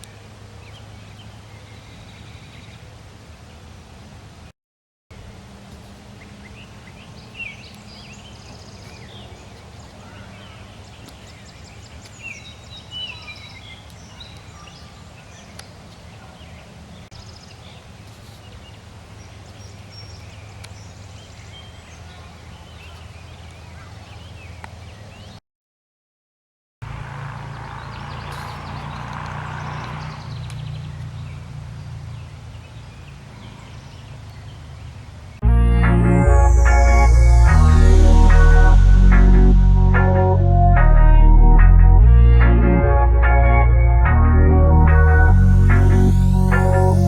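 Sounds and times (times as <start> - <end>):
birds chirping and trilling: 6.2 - 25.4, 27.3 - 35.0, 44.8 - 47.0
steady low rumble: 35.4 - 47.0.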